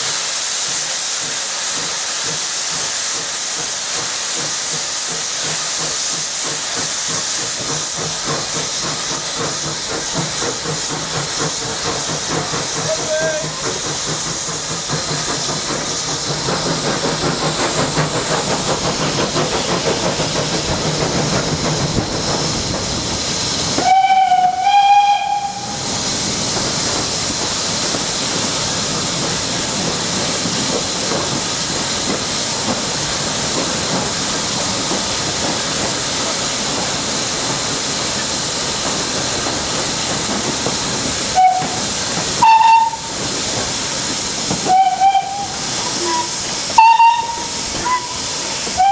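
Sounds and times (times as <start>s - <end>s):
steam hissing: 0.0s - 48.9s
steam whistle blasts: 23.8s - 25.9s, 41.4s - 41.8s, 42.4s - 43.2s, 44.6s - 48.9s.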